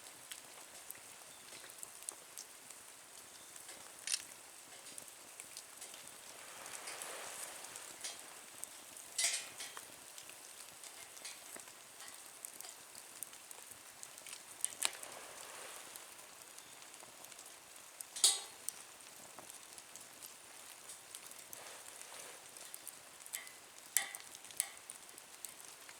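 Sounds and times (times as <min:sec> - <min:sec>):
wood fire crackling: 0:00.0 - 0:25.9
sharp pops of fire: 0:18.1 - 0:18.8.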